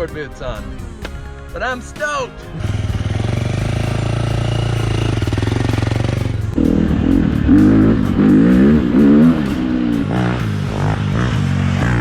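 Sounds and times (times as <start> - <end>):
dirt bike engine revving: 2.4 - 12.0.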